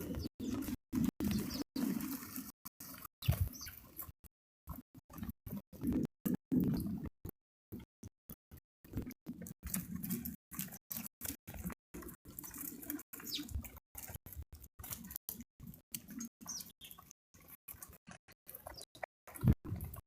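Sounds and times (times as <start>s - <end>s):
high falling bird chirps: 0.0s - 2.0s, 3.2s - 3.9s, 12.4s - 13.6s, 16.4s - 17.0s.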